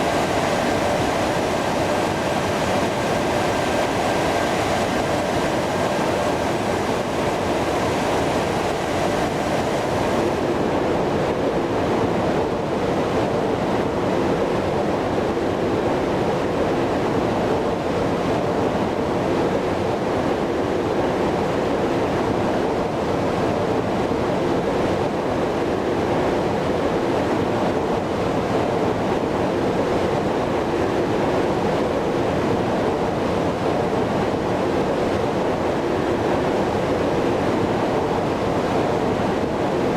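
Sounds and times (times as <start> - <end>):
rushing air: 0.0 - 10.8
jet airliner engines roaring: 0.0 - 11.2.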